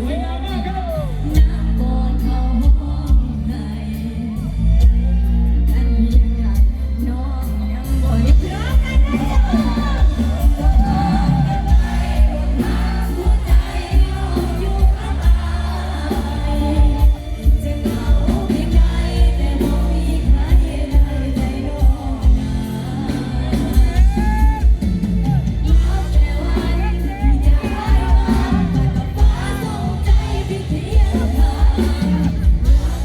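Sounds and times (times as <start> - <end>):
live band playing pop song: 0.0 - 33.0
heavy bass beat: 8.2 - 33.0.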